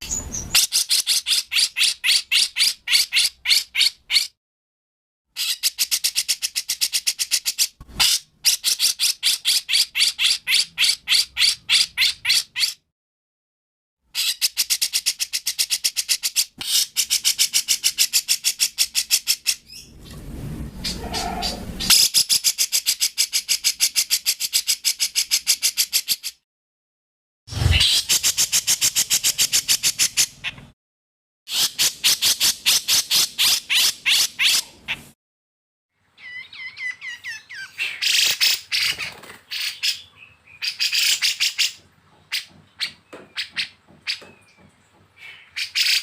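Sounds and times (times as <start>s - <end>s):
lower rough bird call: 20.8s - 22.0s.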